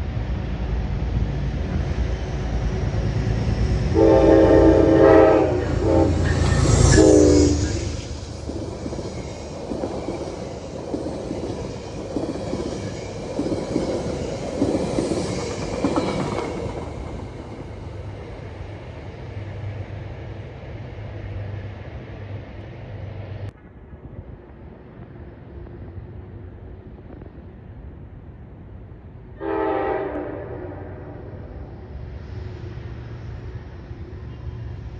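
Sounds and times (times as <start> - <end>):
railcars rattling and clacking: 0.0 - 34.9
train rumble: 0.0 - 34.9
train air horn: 3.9 - 8.1, 29.4 - 31.7.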